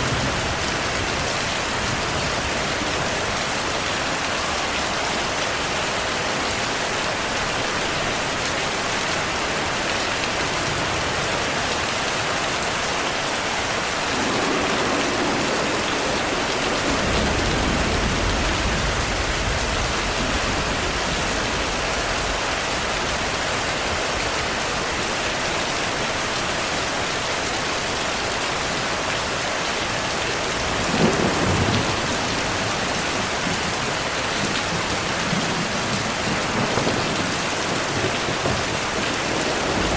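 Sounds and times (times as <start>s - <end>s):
heavy rainfall: 0.0s - 39.9s
thunder rumbling: 14.0s - 23.3s, 30.6s - 33.8s, 34.4s - 39.9s
sharp thunderclap: 14.1s - 22.4s, 34.8s - 39.9s.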